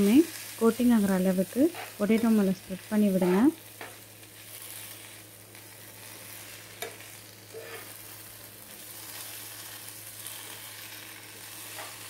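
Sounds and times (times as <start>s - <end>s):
potatoes sizzling in oil: 0.0s - 12.0s
spatula stirring: 6.7s - 8.0s.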